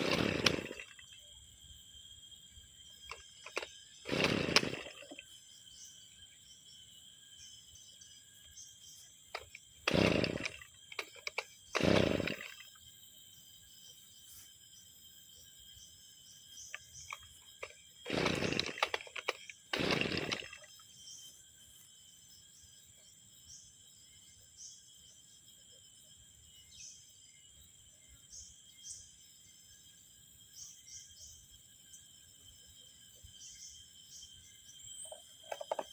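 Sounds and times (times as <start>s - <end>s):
brushcutter engine pull-start bursts: 0.0s - 1.2s, 3.0s - 5.4s, 9.3s - 12.8s, 16.6s - 20.8s, 35.4s - 35.9s.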